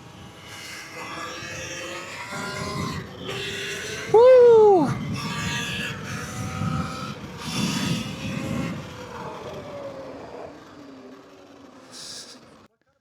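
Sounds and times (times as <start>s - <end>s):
dirt bike engine slowing: 0.0s - 12.8s
wind rushing over microphone: 2.3s - 10.0s.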